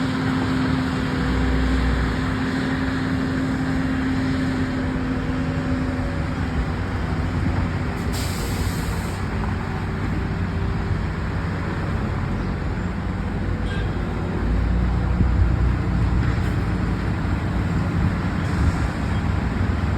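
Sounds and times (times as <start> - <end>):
road milling machine rumbling: 0.0 - 19.9
short hiss: 8.1 - 9.2.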